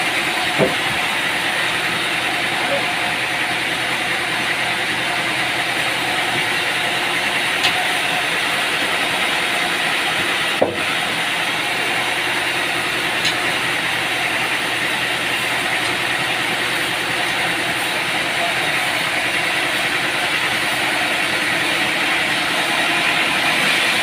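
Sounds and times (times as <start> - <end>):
machinery humming: 0.0 - 24.0.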